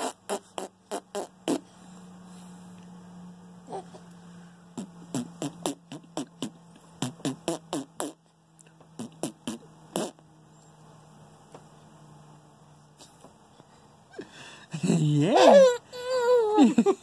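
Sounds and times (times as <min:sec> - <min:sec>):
man making fake fart noises: 0:00.0 - 0:01.6, 0:04.8 - 0:08.2, 0:09.0 - 0:10.2.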